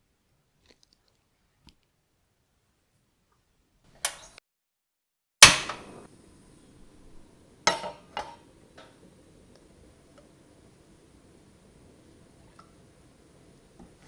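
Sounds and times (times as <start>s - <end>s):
cookware knocking together: 6.8s - 10.4s.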